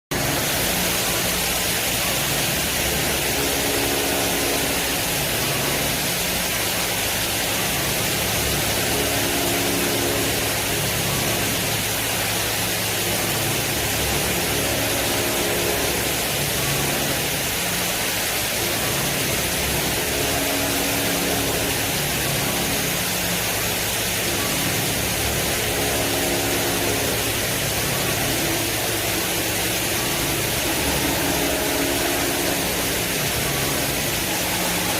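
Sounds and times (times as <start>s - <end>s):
boring mill mechanical hiss: 0.1s - 34.9s
short humming whine: 0.2s - 34.9s.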